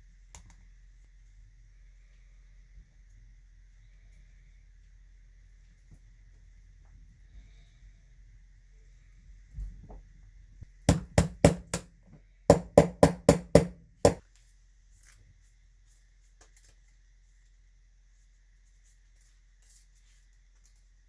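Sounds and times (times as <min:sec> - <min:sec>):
sharp knocks on something hard: 0:10.9 - 0:11.9, 0:12.5 - 0:14.2.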